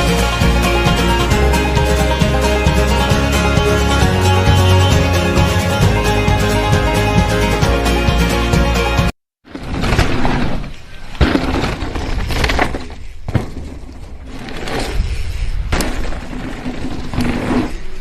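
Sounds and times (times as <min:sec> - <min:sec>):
clattering and crashing: 0:09.5 - 0:15.1, 0:15.7 - 0:18.0.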